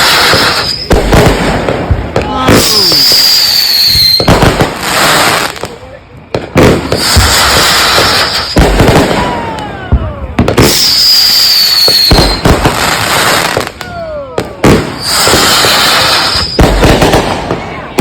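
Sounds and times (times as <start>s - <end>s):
firework whistles falling in pitch: 0.0s - 1.0s, 2.5s - 4.4s, 6.9s - 9.7s, 10.5s - 14.0s, 15.0s - 16.9s
firework booms: 0.0s - 18.0s
firework crackle: 0.0s - 18.0s.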